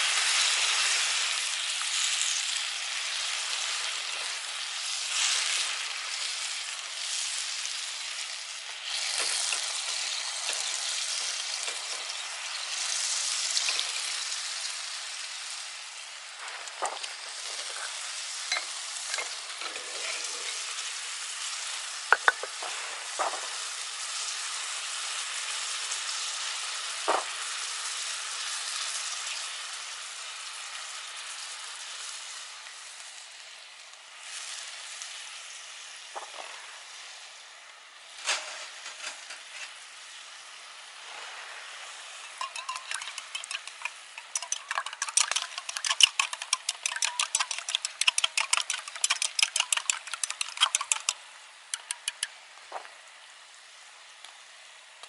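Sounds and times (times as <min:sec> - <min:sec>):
food sizzling in a hot pan: 0:00.0 - 0:55.0
utensil knocking against pan: 0:22.1 - 0:22.6, 0:42.4 - 0:51.1.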